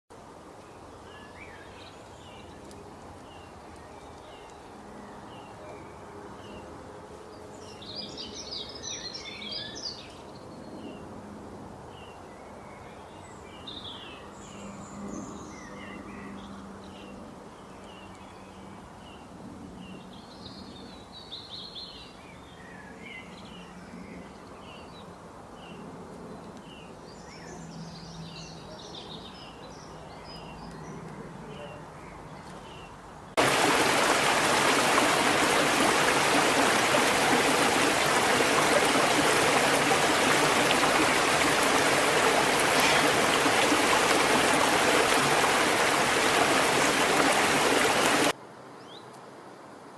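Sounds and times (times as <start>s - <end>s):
birds singing: 26.6s - 48.3s.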